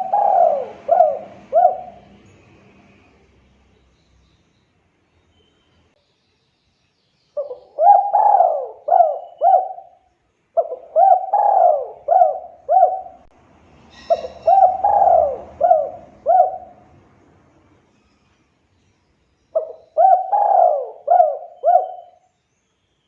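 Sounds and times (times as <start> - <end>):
dove cooing: 0.0 - 2.3, 7.4 - 10.0, 10.6 - 13.3, 14.0 - 16.9, 19.6 - 22.2.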